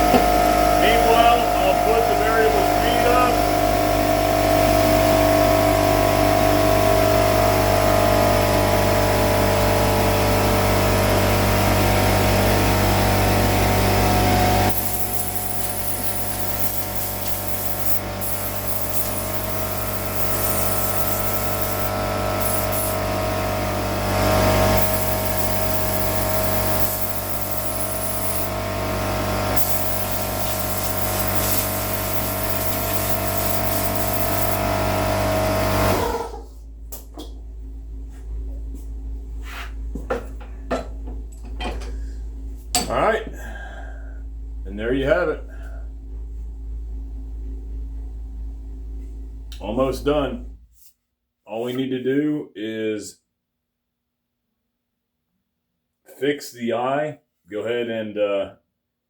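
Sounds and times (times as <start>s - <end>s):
machine hum: 0.0s - 39.3s
compressed air hissing: 14.6s - 23.4s, 24.4s - 28.6s, 29.4s - 35.7s.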